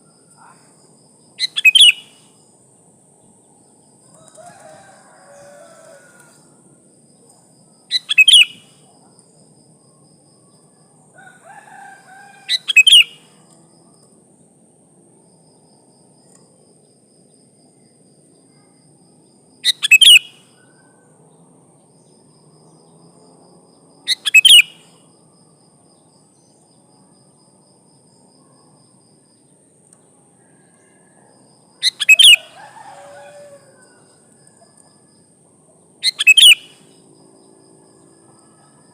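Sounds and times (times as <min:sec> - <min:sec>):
faint lower bird calls: 0:01.4 - 0:02.3, 0:07.9 - 0:09.0, 0:11.8 - 0:13.4, 0:36.0 - 0:37.1
bird giving sharp calls: 0:07.9 - 0:08.6, 0:31.8 - 0:33.6, 0:36.0 - 0:36.8.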